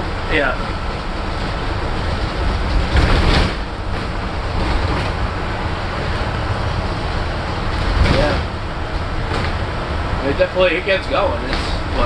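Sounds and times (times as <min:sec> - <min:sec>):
bus engine and road rumble: 0:00.0 - 0:12.0
rattle or bump: 0:00.9 - 0:05.2, 0:07.7 - 0:08.6.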